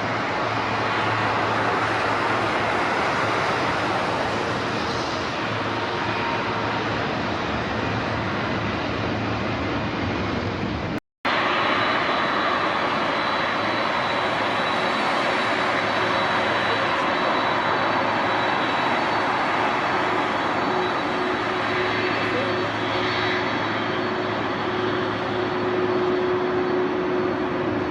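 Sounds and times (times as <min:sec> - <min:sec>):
jet engines rushing: 0:00.0 - 0:27.9
high whine: 0:10.6 - 0:27.9.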